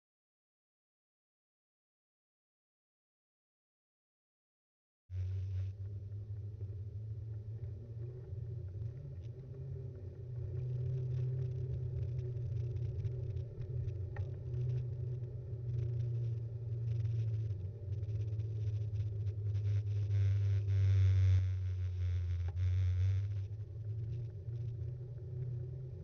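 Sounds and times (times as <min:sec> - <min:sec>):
small clicks and rattles: 0:07.2 - 0:20.6.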